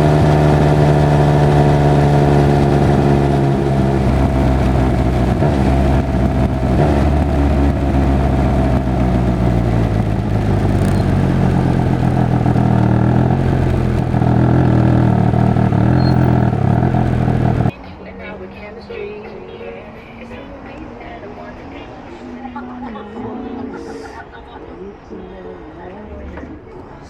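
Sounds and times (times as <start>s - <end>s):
motorcycle engine running: 0.0s - 17.7s.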